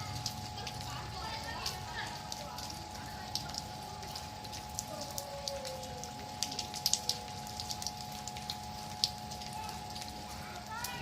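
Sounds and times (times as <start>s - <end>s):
rain falling: 0.0s - 11.0s
raindrops ticking on hard surface: 0.0s - 11.0s.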